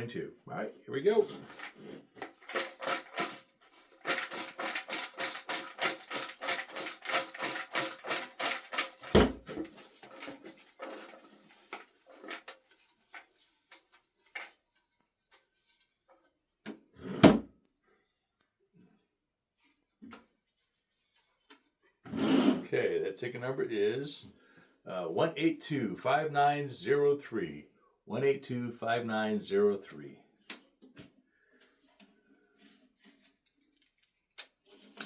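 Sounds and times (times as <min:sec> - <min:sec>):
raffle drum clicking: 0:01.5 - 0:11.1
heavy thump: 0:09.2 - 0:09.5.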